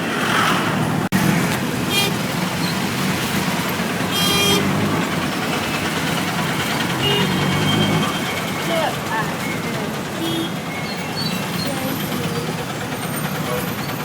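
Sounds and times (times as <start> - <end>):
road traffic engines: 0.0 - 14.0
vehicle horns honking: 1.8 - 2.4, 4.0 - 5.0, 6.6 - 11.8.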